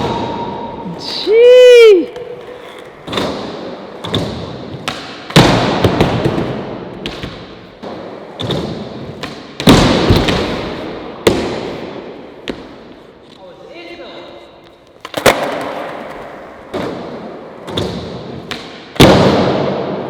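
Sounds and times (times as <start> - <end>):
skateboard wheels rolling: 0.0 - 13.3, 14.6 - 20.0
skateboard clacking and slamming: 15.0 - 19.7.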